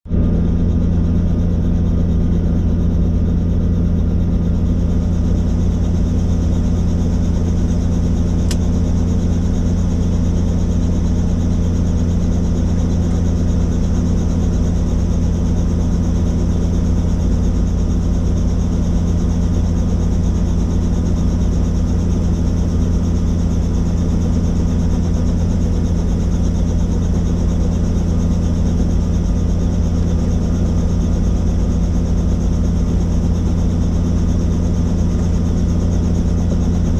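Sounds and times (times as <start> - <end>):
helicopter engine and rotor drone: 0.1 - 36.9.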